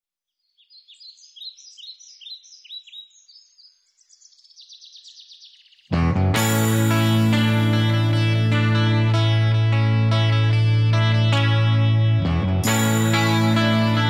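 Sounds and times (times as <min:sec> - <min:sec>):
birds chirping and trilling: 0:00.3 - 0:06.0
loud guitar band music: 0:05.9 - 0:14.0.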